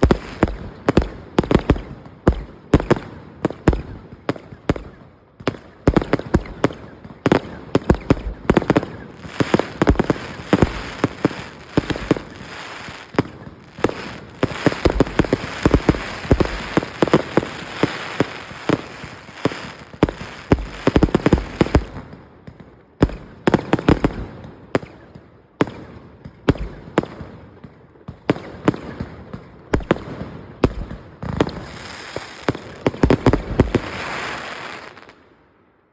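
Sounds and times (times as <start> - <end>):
firework crackling pops: 0.0 - 25.0, 29.8 - 35.2.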